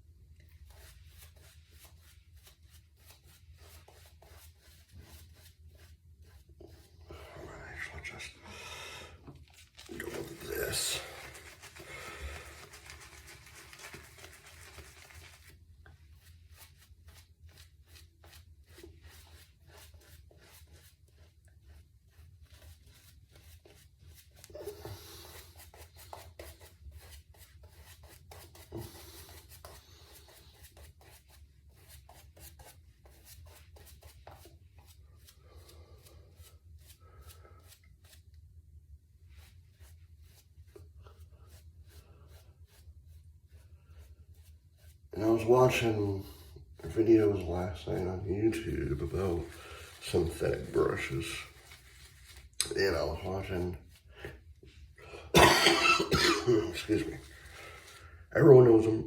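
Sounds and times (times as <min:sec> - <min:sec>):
shaving brush swishing in lather: 0:09.4 - 0:32.8, 0:39.3 - 0:55.0, 0:56.4 - 0:59.0.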